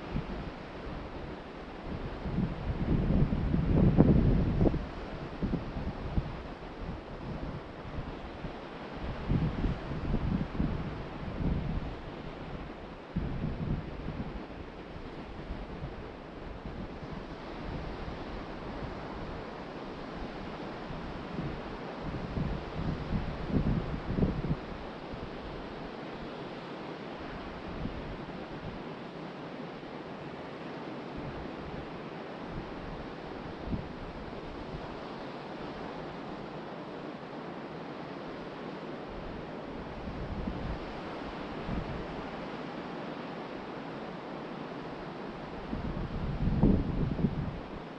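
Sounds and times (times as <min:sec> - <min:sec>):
ocean surf washing onto beach: 0:00.0 - 0:47.9
wind buffeting microphone: 0:01.8 - 0:19.5, 0:20.2 - 0:25.6, 0:45.4 - 0:47.9.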